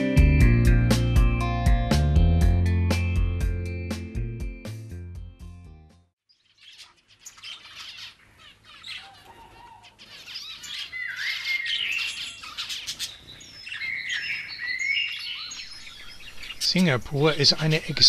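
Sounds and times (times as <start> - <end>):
birds chirping and calling: 6.3 - 18.0.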